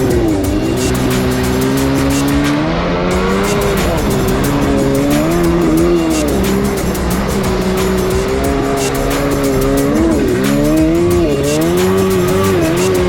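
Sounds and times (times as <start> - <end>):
jet ski engine running: 0.0 - 13.0.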